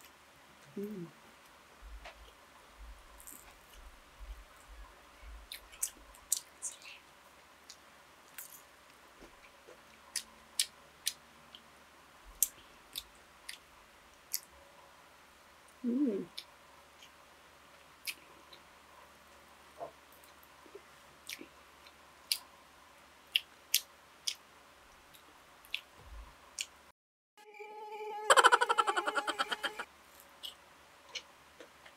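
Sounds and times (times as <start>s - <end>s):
short voice hum: 0.8s - 1.2s.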